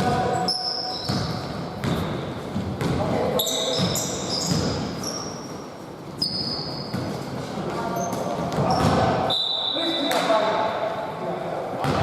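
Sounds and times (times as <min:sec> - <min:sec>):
sneakers squeaking: 0:00.0 - 0:10.4
voices echoing: 0:00.0 - 0:12.0
basketball bouncing on court: 0:01.0 - 0:04.9, 0:08.2 - 0:09.2.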